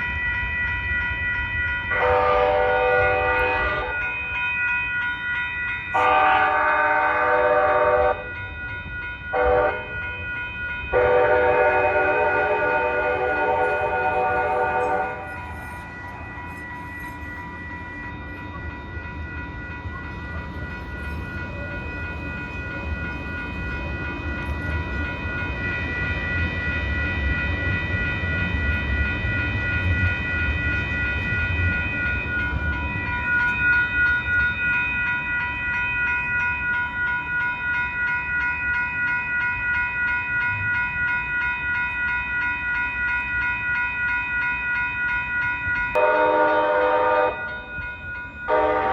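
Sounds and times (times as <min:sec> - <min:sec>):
crossing warning bells ringing: 0:00.0 - 0:48.9
train rumbling past: 0:05.0 - 0:37.8.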